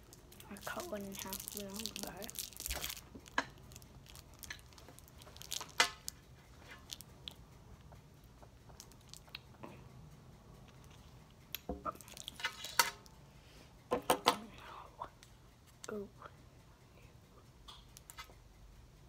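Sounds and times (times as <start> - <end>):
person chewing candy: 0.0 - 9.8, 10.6 - 13.0.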